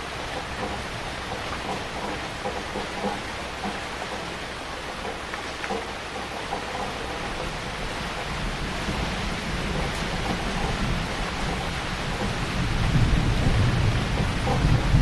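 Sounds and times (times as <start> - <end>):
heavy rain pouring: 0.0 - 15.0
thunder rumbling: 6.5 - 15.0.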